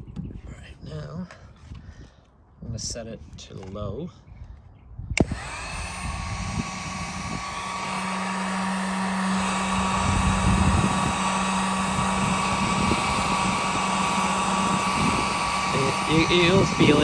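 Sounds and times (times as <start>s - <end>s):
heat gun blowing hiss and whine: 5.2s - 17.0s.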